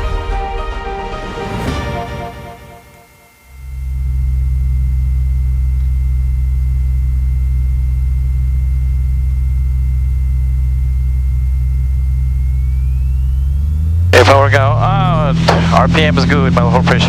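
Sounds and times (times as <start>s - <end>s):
airplane engine drone in cabin: 0.7s - 17.0s
thin steady whine: 1.2s - 17.0s.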